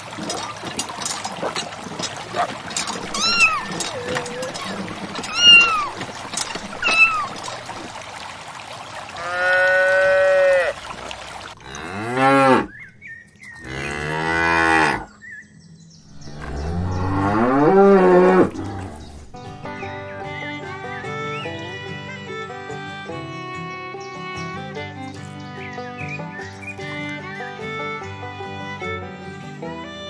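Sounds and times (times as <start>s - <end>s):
cattle mooing: 2.3s - 7.8s, 9.2s - 10.8s, 11.6s - 12.8s, 13.6s - 15.1s, 16.3s - 19.1s.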